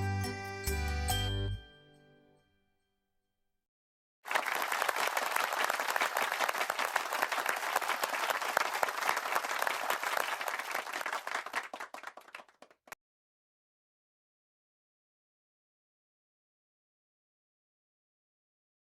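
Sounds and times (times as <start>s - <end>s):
crowd applause: 4.3s - 13.0s.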